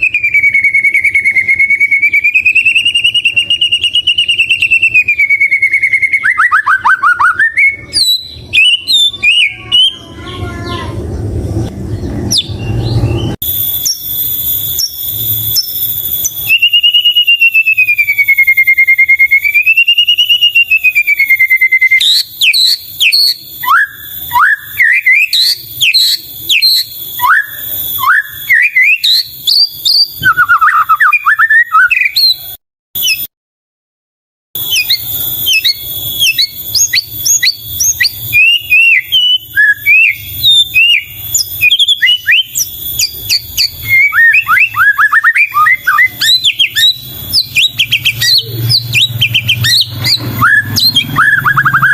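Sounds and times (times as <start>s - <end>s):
bird whistling song: 0.0s - 33.3s, 34.6s - 51.9s.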